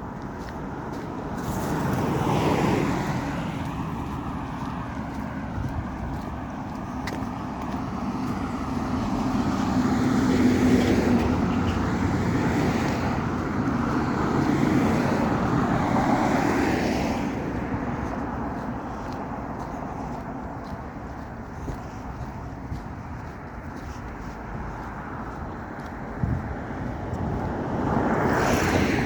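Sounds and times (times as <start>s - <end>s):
motor vehicles passing: 0.0s - 29.0s.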